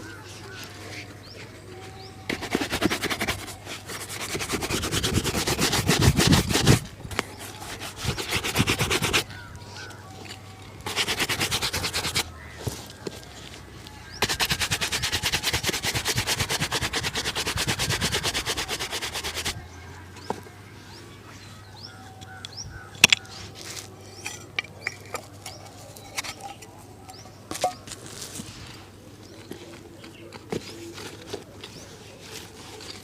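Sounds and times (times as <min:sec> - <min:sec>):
birds calling: 0:00.0 - 0:33.0
rubbing strokes on a shoe: 0:01.8 - 0:09.3, 0:10.8 - 0:12.6, 0:14.1 - 0:19.6.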